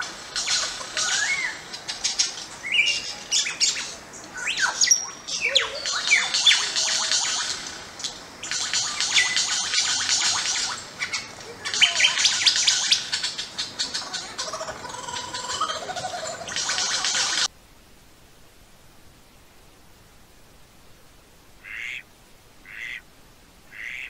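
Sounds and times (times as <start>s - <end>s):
birds chirping and twittering: 0.0s - 17.5s.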